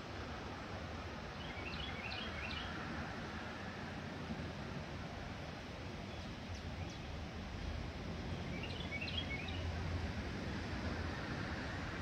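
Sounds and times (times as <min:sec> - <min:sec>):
low outdoor rumble: 0:00.0 - 0:12.0
bird chirps: 0:08.5 - 0:09.6.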